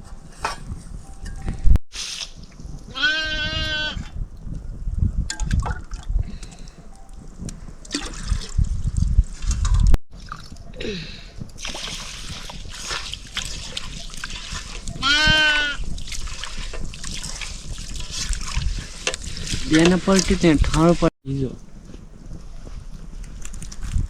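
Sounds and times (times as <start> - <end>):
goat bleating: 2.9 - 4.0, 15.0 - 15.8
running water trickling: 4.0 - 21.1.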